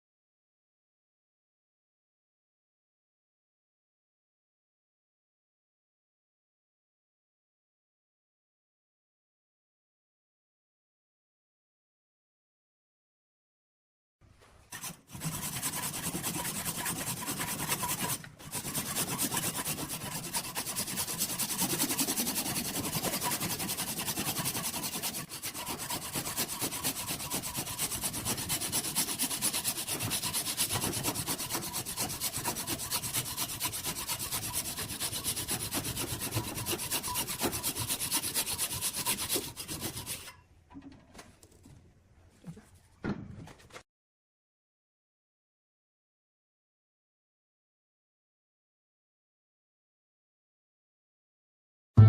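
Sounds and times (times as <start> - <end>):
sanding wood on a lathe: 14.7 - 40.3.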